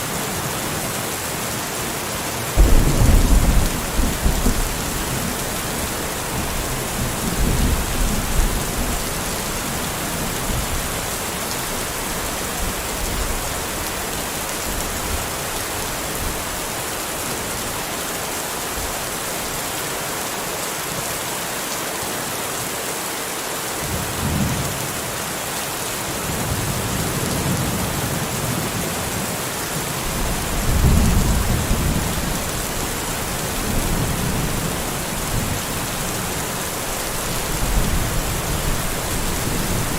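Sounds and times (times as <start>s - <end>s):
steady rain falling: 0.0s - 39.9s
thunder rumbling: 2.6s - 9.0s, 30.1s - 39.9s.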